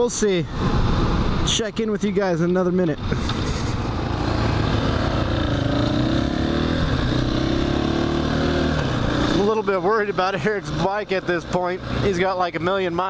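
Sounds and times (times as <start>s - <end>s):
dirt bike engine running: 3.1s - 13.0s.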